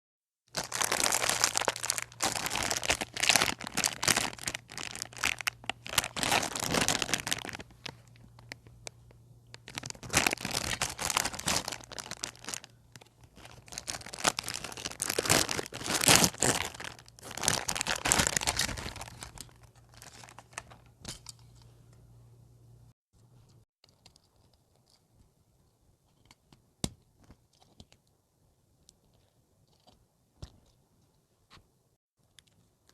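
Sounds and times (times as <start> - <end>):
crinkly material crumpling: 0.5 - 20.8.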